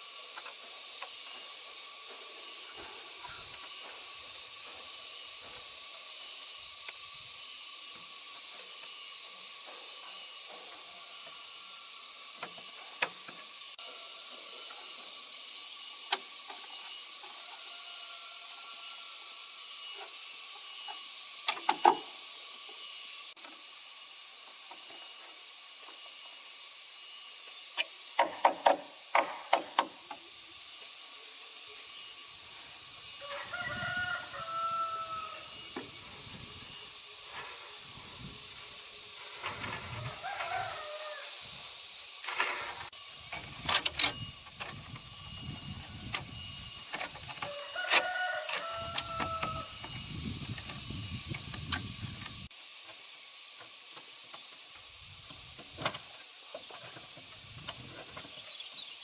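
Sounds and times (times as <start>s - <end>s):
rooster crowing: 17.3s - 19.4s, 33.1s - 35.8s, 39.8s - 41.5s, 47.4s - 49.8s.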